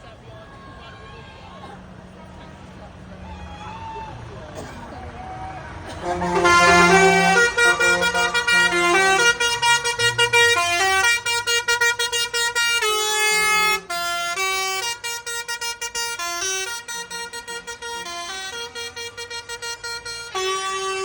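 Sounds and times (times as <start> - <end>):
horn-like electronic melody: 5.9 - 21.0.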